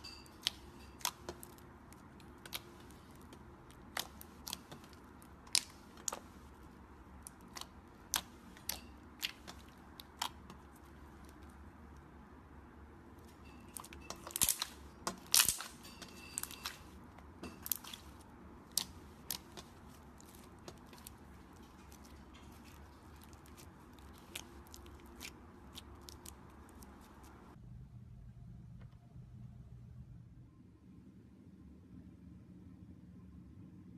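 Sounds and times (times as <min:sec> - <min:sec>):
slime crackling and popping: 0:00.1 - 0:11.6, 0:13.6 - 0:27.6.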